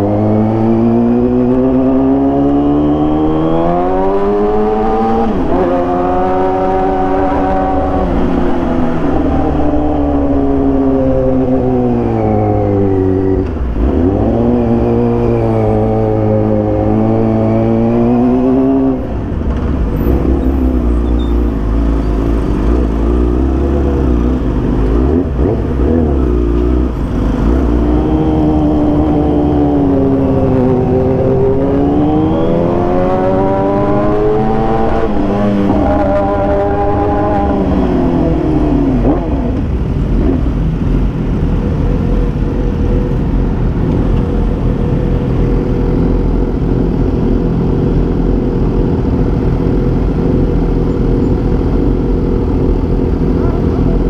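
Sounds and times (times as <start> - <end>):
motorcycle engine revving: 0.0 - 54.0
steady low rumble: 37.4 - 54.0.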